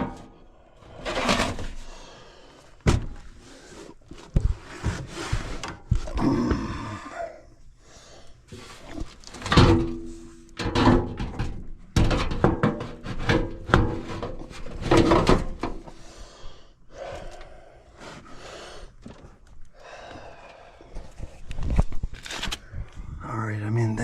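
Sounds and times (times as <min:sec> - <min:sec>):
knocks clunks and scraping: 0:00.0 - 0:06.2, 0:08.5 - 0:16.1.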